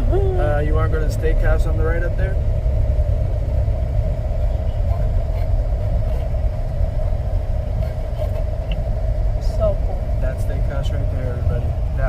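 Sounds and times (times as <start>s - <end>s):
car engine and road rumble: 0.0s - 12.0s
constant hum: 0.0s - 12.0s.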